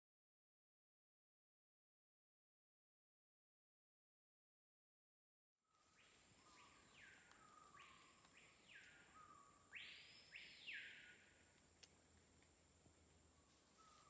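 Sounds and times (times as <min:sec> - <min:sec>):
bird whistled calls: 0:05.8 - 0:11.2
insects hissing: 0:05.9 - 0:14.0.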